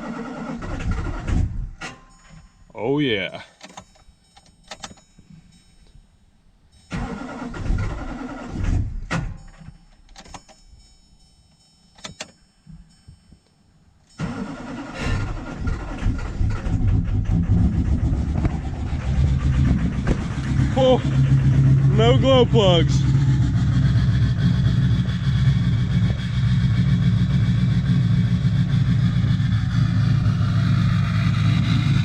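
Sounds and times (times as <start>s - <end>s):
diesel engine cold starting: 0.0s - 2.6s, 6.8s - 10.6s, 14.0s - 32.0s.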